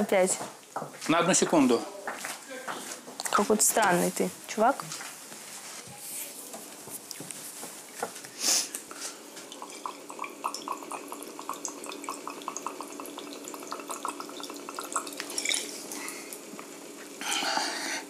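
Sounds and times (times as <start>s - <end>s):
short hiss: 8.3s - 9.2s
small water drips: 8.8s - 16.7s
water running: 8.8s - 18.0s.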